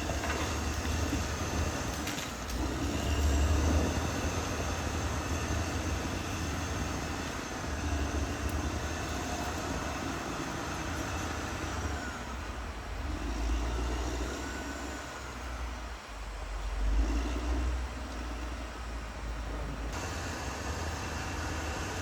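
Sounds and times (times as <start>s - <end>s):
bulldozer diesel engine rumbling: 0.0s - 22.0s
faint high whine: 0.0s - 22.0s.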